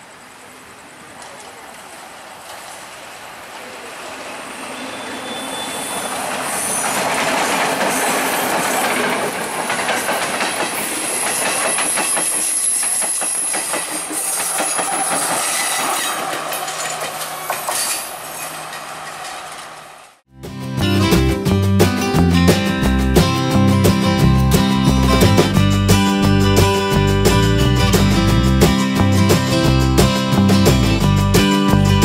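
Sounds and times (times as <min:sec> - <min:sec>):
train wheels clicking on rail joints: 0:05.5 - 0:20.2.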